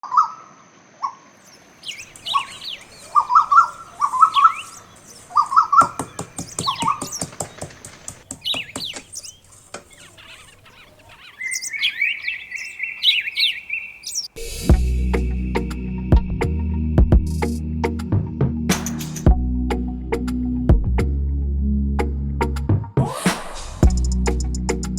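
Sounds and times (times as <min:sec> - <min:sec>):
high trilling bird call: 0:01.0 - 0:14.5
birds chirping and calling: 0:01.0 - 0:14.6.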